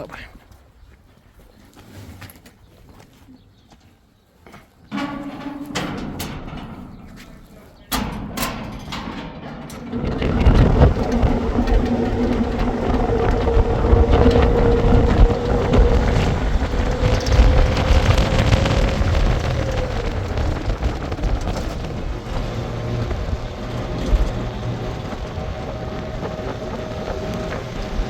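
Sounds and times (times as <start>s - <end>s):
vehicle engine running: 9.6s - 28.0s.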